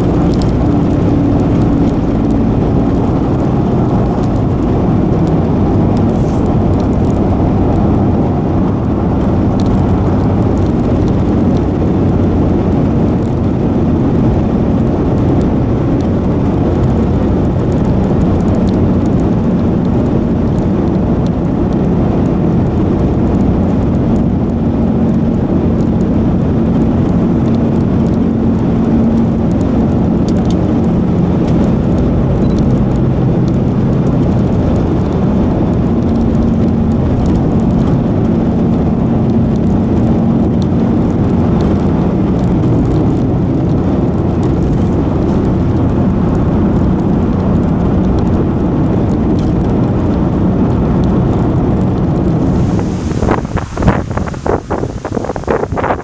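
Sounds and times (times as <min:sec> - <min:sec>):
strong wind roaring: 0:00.0 - 0:56.0
wind buffeting microphone: 0:00.0 - 0:56.0
low hum: 0:52.2 - 0:56.0.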